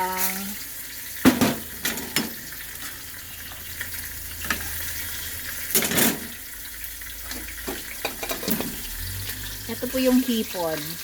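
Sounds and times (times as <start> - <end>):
food sizzling in hot oil: 0.0 - 11.0
pan clatter: 1.2 - 3.0, 5.7 - 6.4, 7.3 - 8.8.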